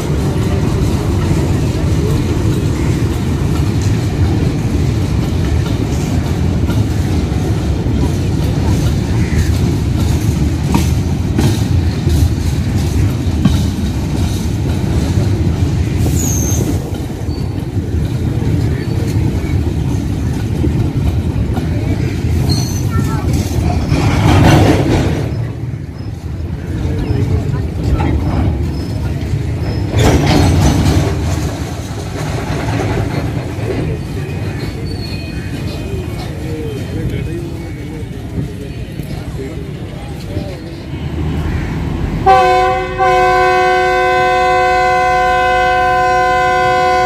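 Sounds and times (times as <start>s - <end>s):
train rumbling past: 0.0s - 47.0s
wheels clacking over rail joints: 0.0s - 47.0s.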